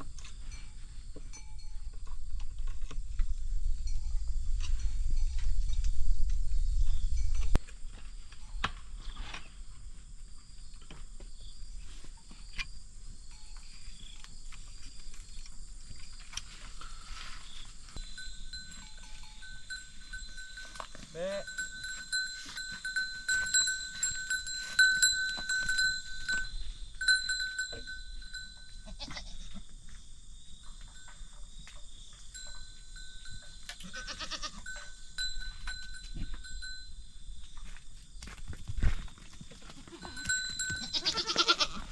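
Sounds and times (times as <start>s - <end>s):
goats bleating: 28.8s - 29.4s, 33.8s - 34.8s, 39.6s - 41.9s.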